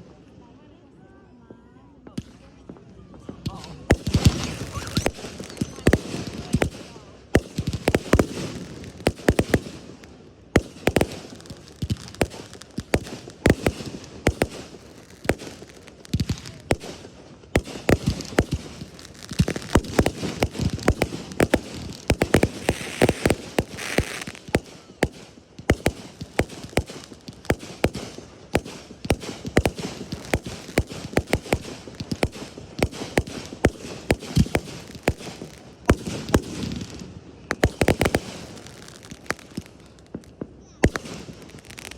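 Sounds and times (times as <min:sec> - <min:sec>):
fireworks bangs and pops: 0:02.0 - 0:41.9.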